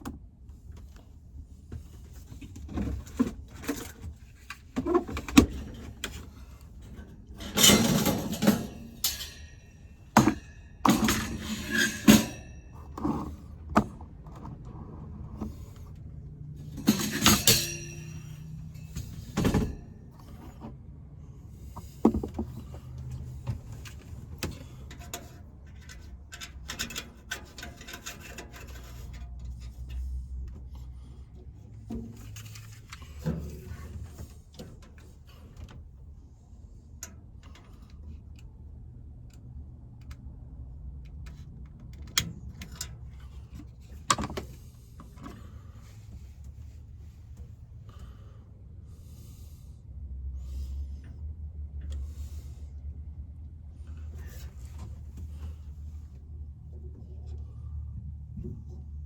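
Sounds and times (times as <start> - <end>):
objects knocking and scraping: 16.6 - 20.8, 21.7 - 30.2.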